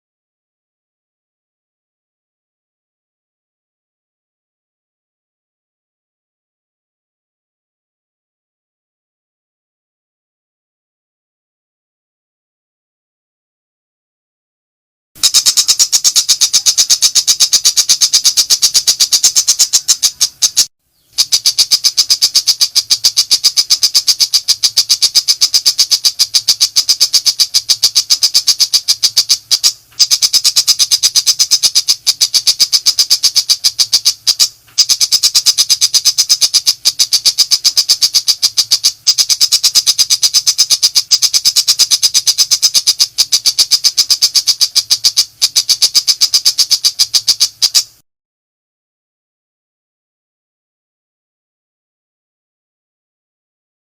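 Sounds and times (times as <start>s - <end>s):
shrike singing rapid high notes: 15.2s - 47.9s.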